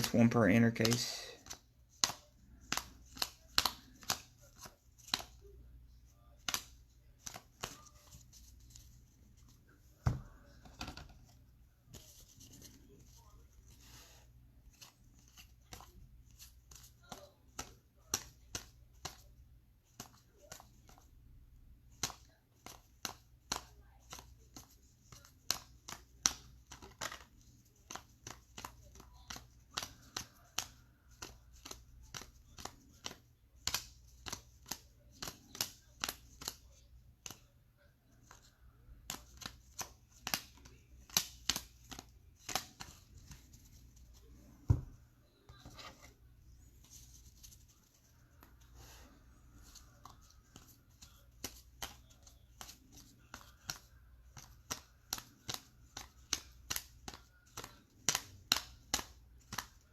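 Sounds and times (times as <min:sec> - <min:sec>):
cards snapping while flipped: 0:00.8 - 0:05.4, 0:06.4 - 0:08.8, 0:21.9 - 0:37.4, 0:39.0 - 0:43.6, 0:49.6 - 0:59.9.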